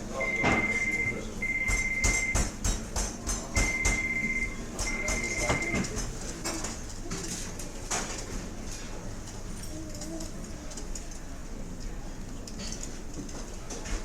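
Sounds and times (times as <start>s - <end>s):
phone ringing: 0.2s - 2.3s, 3.7s - 5.9s
cutlery and dishes clattering: 4.8s - 8.9s, 12.4s - 14.0s.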